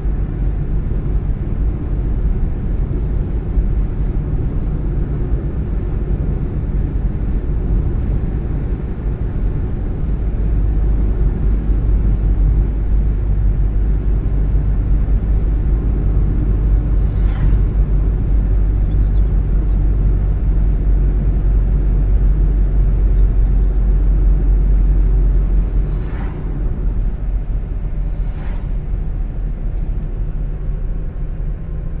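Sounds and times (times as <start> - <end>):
car engine and road rumble: 0.0 - 32.0.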